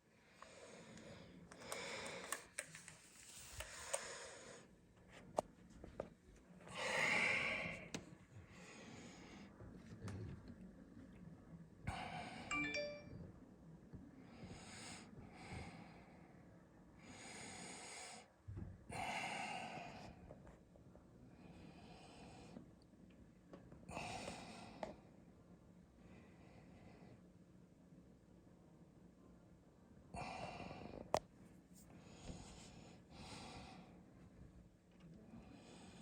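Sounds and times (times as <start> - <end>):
person breathing heavily: 6.7 - 9.6.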